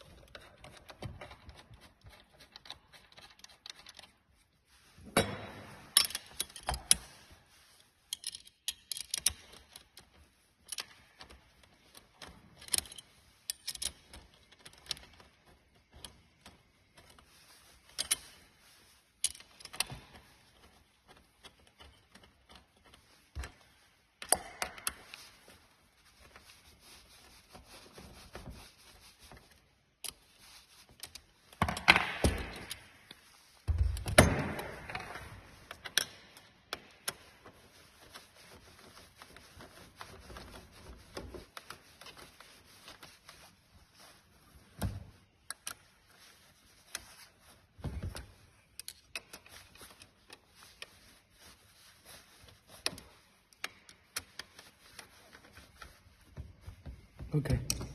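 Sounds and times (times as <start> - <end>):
hand tools clicking and rattling: 8.1 - 17.2.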